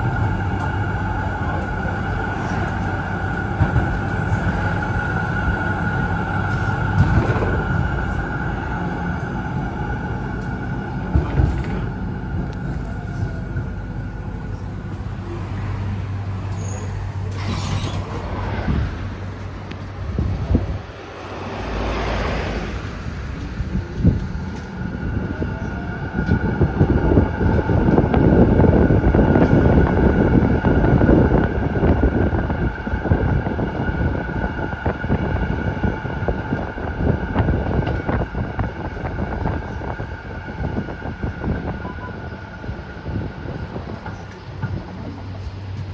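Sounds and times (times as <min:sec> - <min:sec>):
rumble of tram wheels: 0:00.0 - 0:45.9
tram whine: 0:00.0 - 0:45.9
brief hissing: 0:16.7 - 0:18.7.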